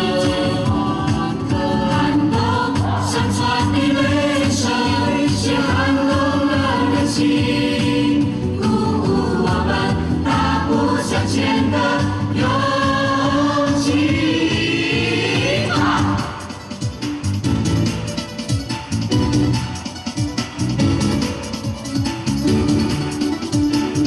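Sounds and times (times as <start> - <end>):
choir singing: 0.0 - 16.7
instrumental backing with steady beat: 0.0 - 24.0.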